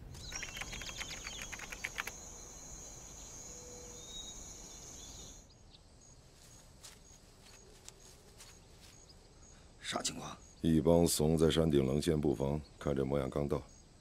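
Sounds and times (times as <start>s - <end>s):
high insect trill: 0.1s - 12.0s
faint clicks and ticks: 0.3s - 2.2s.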